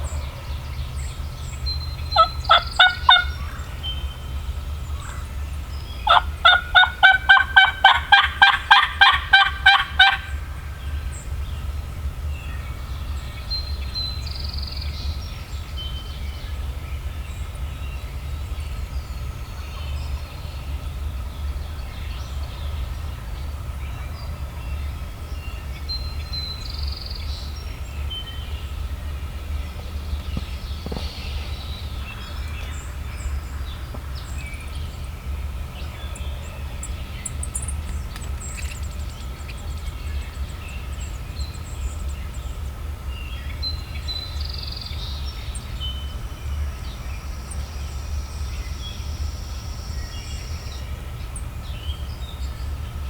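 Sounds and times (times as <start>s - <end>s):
faint songbird chirps: 0.0s - 53.0s
low steady hum: 0.0s - 53.0s
turkey yelps: 2.2s - 3.6s, 6.1s - 10.4s.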